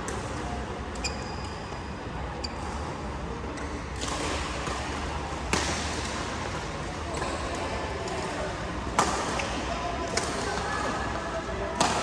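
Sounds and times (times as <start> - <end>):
indoor hall noise: 0.0 - 12.0
shoe squeak: 1.0 - 1.7
racket hitting shuttlecock: 4.0 - 11.0.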